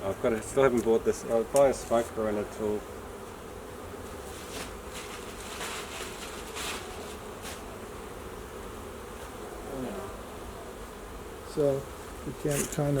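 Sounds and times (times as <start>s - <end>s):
honeybees buzzing: 0.0s - 13.0s
scratchy noises: 4.1s - 7.7s, 12.4s - 13.0s.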